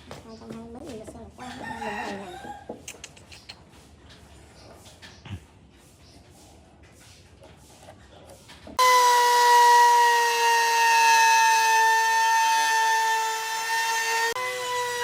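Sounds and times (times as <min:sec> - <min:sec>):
power tool whining: 0:08.8 - 0:15.0.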